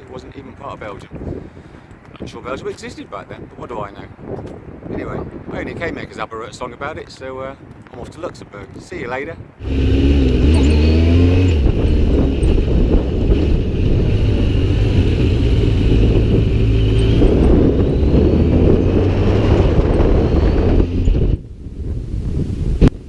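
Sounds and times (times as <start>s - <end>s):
wind rush over microphone: 0.0s - 23.0s
motorcycle engine running: 9.6s - 21.5s.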